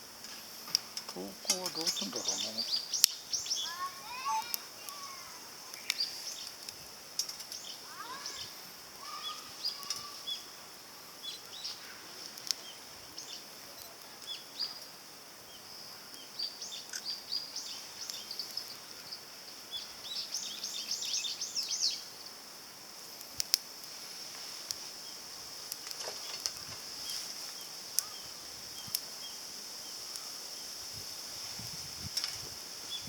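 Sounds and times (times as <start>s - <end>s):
steady high hiss: 0.0s - 33.0s
birds chirping: 1.1s - 6.6s, 7.2s - 22.2s
sharp snaps: 2.9s - 7.7s, 9.0s - 10.2s, 23.2s - 23.9s, 25.6s - 28.2s, 28.9s - 29.1s.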